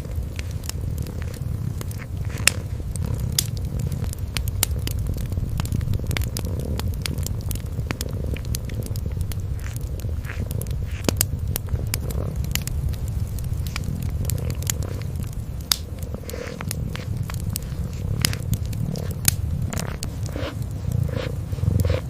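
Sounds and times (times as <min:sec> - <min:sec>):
cat purring: 0:00.0 - 0:22.0
wood fire crackling: 0:00.0 - 0:22.0.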